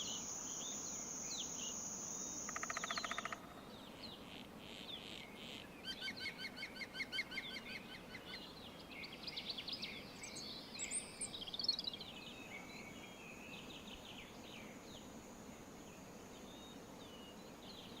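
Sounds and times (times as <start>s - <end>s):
faint outdoor background: 0.0s - 18.0s
fast repeated bird chirps: 2.5s - 3.5s.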